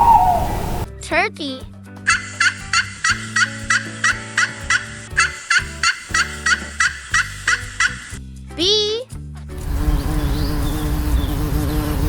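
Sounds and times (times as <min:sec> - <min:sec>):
wild turkey gobbling: 0:00.0 - 0:00.8, 0:02.1 - 0:08.1.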